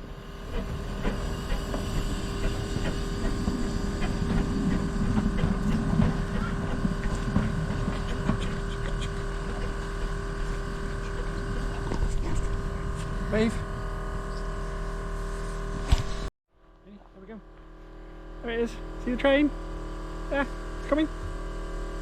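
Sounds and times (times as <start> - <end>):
steam train running: 0.0 - 15.9.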